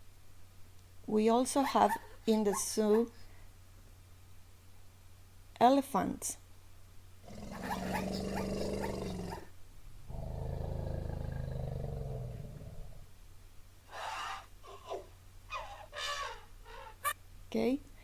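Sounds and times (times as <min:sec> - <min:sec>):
elephant calling: 0:07.5 - 0:09.5.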